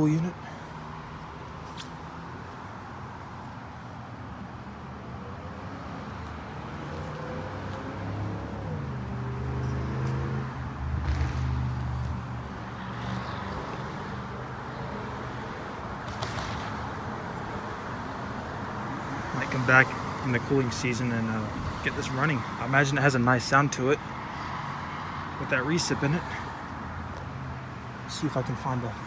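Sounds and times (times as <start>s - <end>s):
road noise hum: 0.0s - 29.0s
vehicle engine passing: 6.6s - 21.0s.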